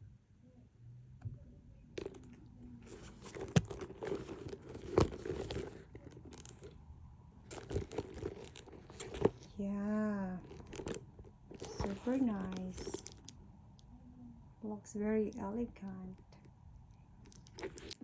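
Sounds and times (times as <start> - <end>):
handbag wrapping crinkling: 2.0 - 6.8, 7.5 - 13.3, 17.3 - 18.0.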